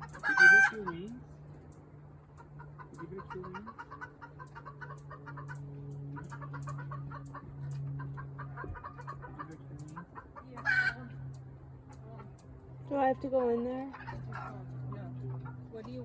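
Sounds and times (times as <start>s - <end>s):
chicken squawk: 0.0s - 1.0s, 2.4s - 11.2s, 13.9s - 14.6s
chickens clucking: 0.0s - 1.2s, 2.2s - 12.5s, 13.5s - 16.0s
steady low hum: 0.0s - 16.0s.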